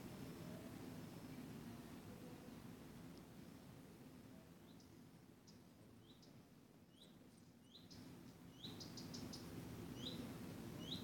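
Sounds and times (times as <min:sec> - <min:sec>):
low background noise: 0:00.0 - 0:11.0
small bird chirping: 0:05.5 - 0:11.0.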